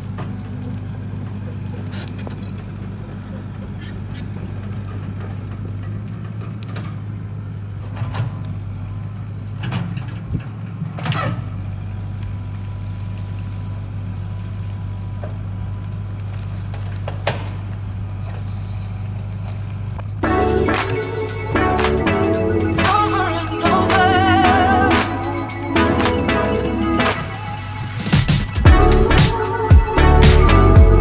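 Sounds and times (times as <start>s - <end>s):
excavator diesel engine running: 20.2s - 31.0s.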